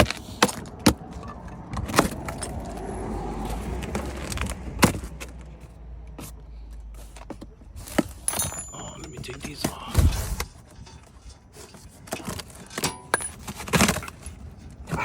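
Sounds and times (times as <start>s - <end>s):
metal tools clinking: 1.1s - 3.0s, 7.8s - 14.8s.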